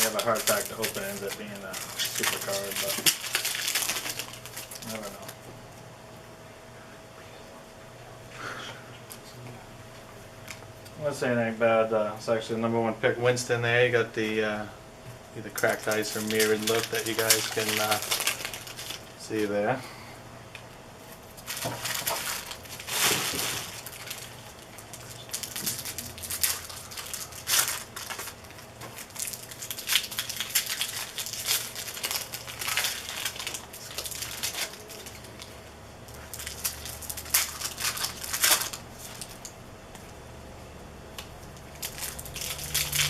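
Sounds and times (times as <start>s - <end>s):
foil wrappers crinkling: 0.0s - 5.4s, 15.4s - 19.6s, 21.1s - 39.5s, 41.2s - 43.0s.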